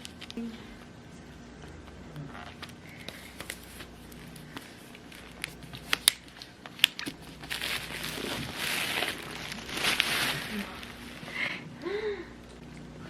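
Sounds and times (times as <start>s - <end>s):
paper and plastic crinkling: 2.2s - 11.4s.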